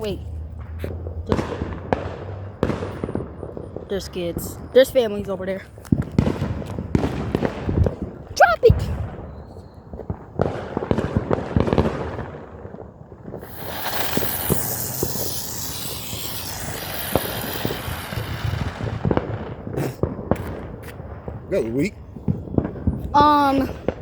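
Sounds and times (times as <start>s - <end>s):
firework crackling pops: 0.0s - 24.0s
hiss of spraying sparks: 13.4s - 18.8s.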